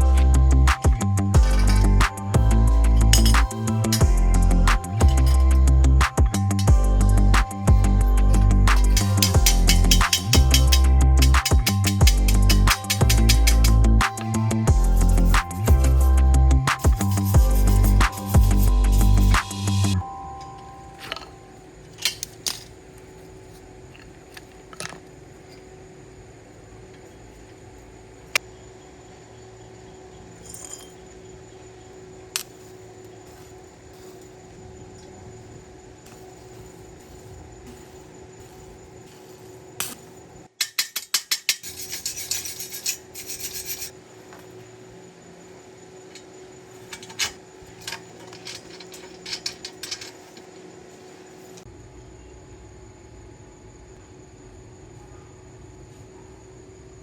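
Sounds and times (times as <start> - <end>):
sharp metallic clinks: 0.0 - 22.7, 30.4 - 31.2, 36.0 - 44.0, 46.9 - 50.6
faint steady hum: 0.0 - 57.0
scraping on a hard surface: 41.6 - 44.0.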